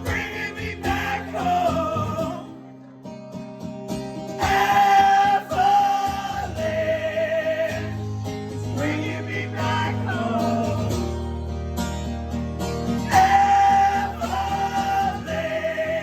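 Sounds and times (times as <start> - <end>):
strummed acoustic guitar: 0.0 - 16.0
person singing: 13.1 - 16.0.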